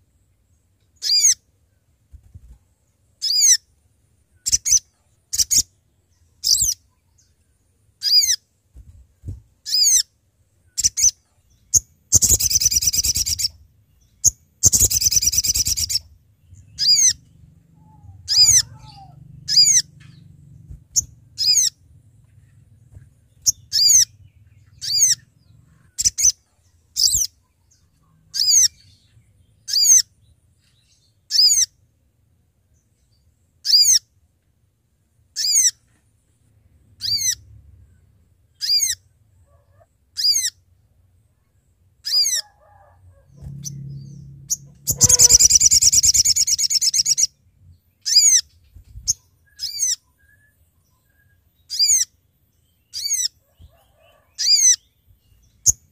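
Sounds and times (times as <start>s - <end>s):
bird rapid chattering: 11.7s - 13.5s, 14.2s - 16.1s, 44.5s - 47.3s
bird high descending calls: 12.1s - 13.6s, 14.2s - 30.1s, 42.0s - 47.4s.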